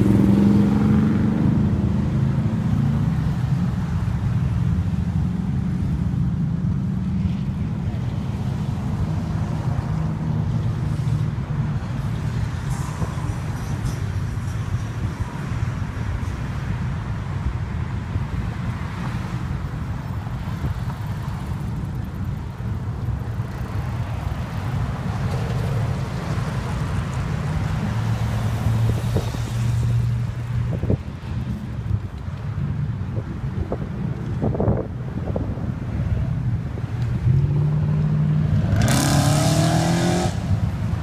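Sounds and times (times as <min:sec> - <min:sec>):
street traffic rumble: 0:00.0 - 0:41.0
wind buffeting microphone: 0:20.1 - 0:38.7.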